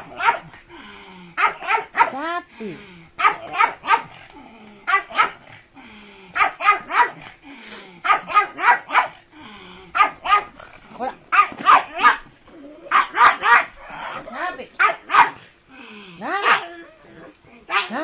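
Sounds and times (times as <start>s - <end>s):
dog barking sharply: 0.1s - 0.5s, 11.3s - 12.2s, 12.9s - 13.7s, 14.8s - 15.4s
dog crying: 12.8s - 14.2s, 16.2s - 18.0s.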